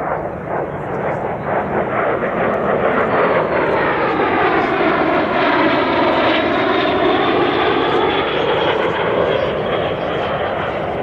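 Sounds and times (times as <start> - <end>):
aircraft engines droning past: 0.0 - 11.0.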